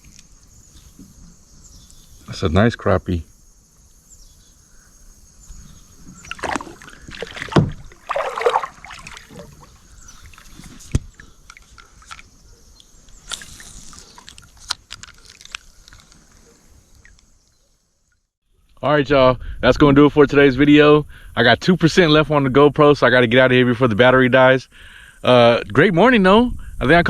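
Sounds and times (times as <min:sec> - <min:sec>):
rustling: 0:05.5 - 0:17.5
knocks against kayak hull: 0:06.0 - 0:09.7
water sloshing and splashing: 0:06.0 - 0:12.4, 0:13.1 - 0:17.3.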